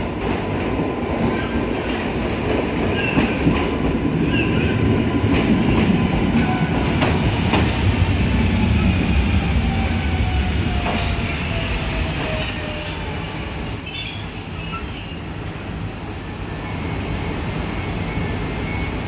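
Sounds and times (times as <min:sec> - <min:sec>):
high-pitched brake squealing: 0:11.6 - 0:15.6.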